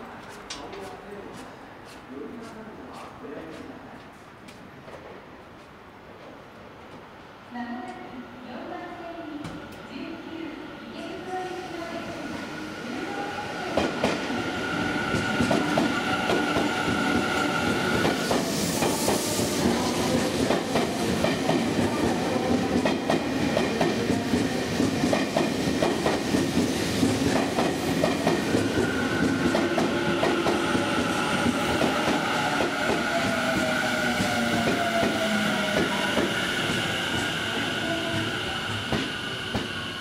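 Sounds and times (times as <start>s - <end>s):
electric train whine: 10.5s - 40.0s.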